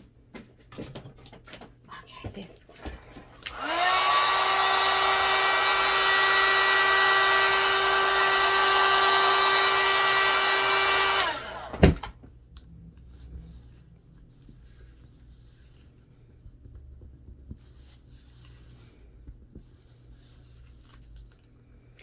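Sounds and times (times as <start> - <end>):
power tool motor whining: 3.5 - 12.0.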